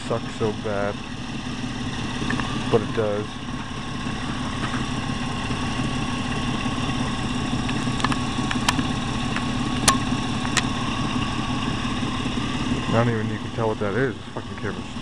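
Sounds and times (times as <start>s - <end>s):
vehicle engine idling: 0.0s - 15.0s
sharp clicks: 7.6s - 10.8s.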